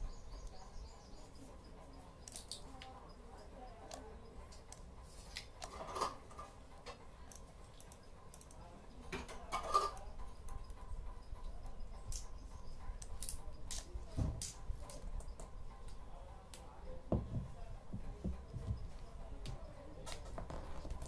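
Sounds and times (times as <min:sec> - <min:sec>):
objects clicking and rattling: 0:02.2 - 0:02.9, 0:03.9 - 0:10.8.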